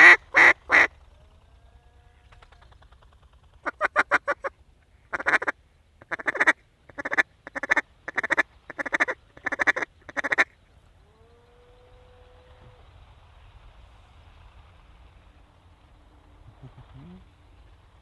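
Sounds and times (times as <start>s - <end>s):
duck quacking: 5.1s - 10.5s.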